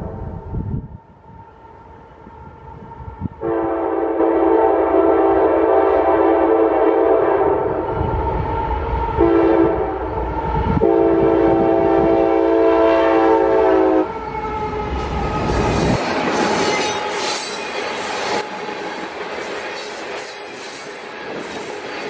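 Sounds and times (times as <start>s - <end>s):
train wheels rushing on rails: 1.8s - 22.0s
locomotive air horn blasts: 2.8s - 7.8s, 8.4s - 15.9s.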